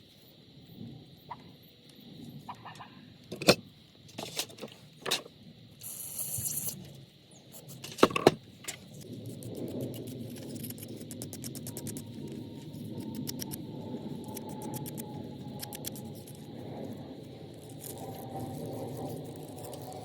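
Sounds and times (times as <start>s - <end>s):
short hiss: 5.8s - 6.8s.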